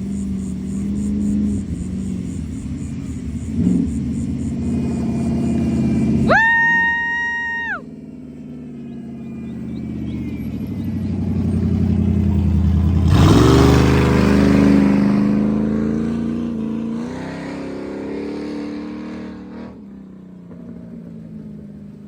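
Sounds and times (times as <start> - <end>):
race car passing by: 7.6 - 21.4.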